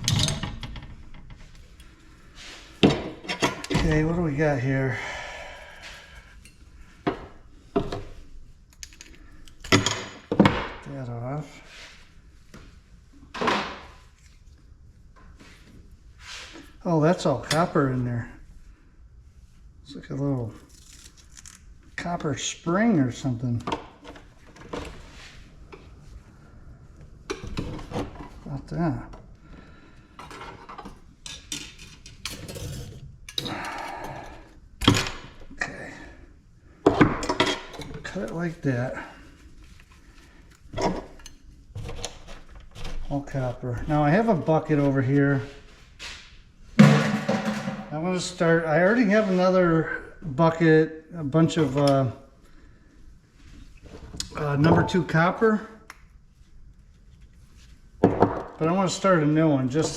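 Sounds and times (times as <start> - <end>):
metal parts clicking and knocking: 0.0 - 1.0.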